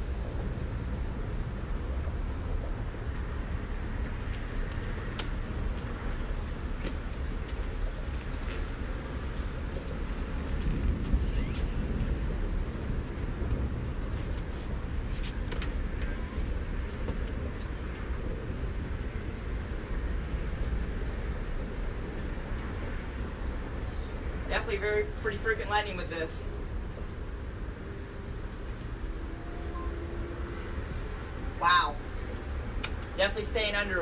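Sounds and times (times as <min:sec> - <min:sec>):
road traffic rumble: 0:00.0 - 0:34.0.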